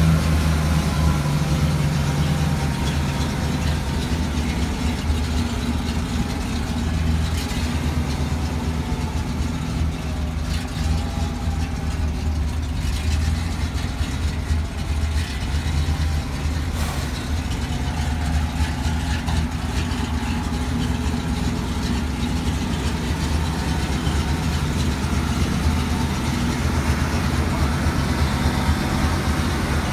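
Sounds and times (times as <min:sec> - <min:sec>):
truck engine idling: 0:00.0 - 0:29.9.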